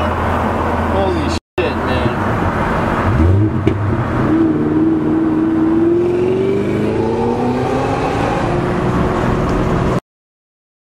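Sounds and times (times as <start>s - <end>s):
car engine accelerating: 2.1s - 10.0s.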